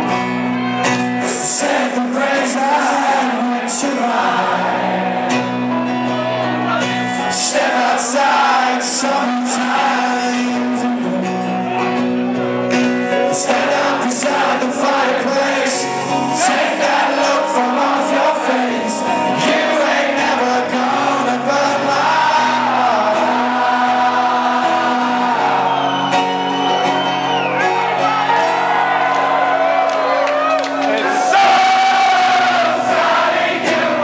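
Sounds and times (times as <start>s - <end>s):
live rock band playing: 0.0s - 34.0s
man singing: 0.9s - 25.9s.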